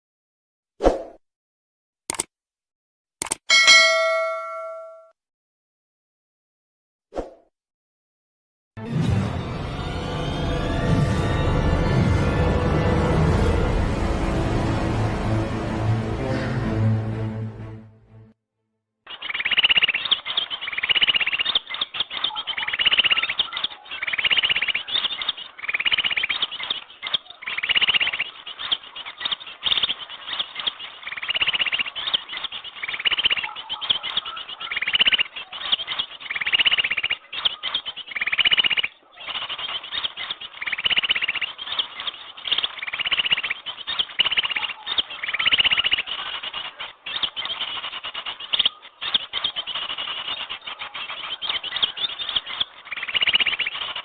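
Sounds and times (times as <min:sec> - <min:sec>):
small birds chirping and twittering: 0:19.1 - 0:54.0.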